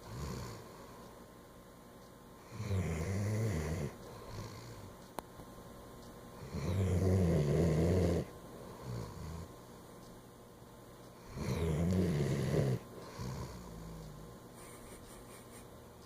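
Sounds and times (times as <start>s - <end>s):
dog snoring: 0.0s - 0.8s, 2.4s - 4.9s, 6.4s - 9.5s, 11.2s - 14.4s.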